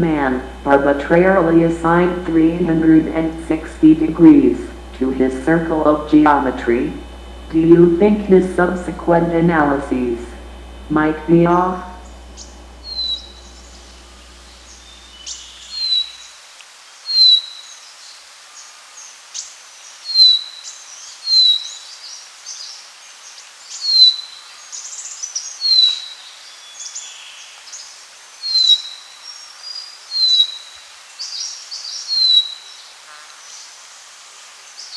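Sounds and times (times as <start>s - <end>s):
faint steady hiss: 0.0s - 34.9s
higher bird chirps: 11.5s - 16.3s
bird whistling: 12.4s - 16.2s.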